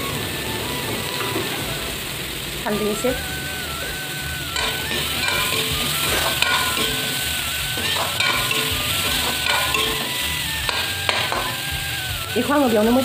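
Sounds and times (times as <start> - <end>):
fruit sizzling in hot oil: 0.0 - 13.0
metal ladle scraping a wok: 4.6 - 11.7.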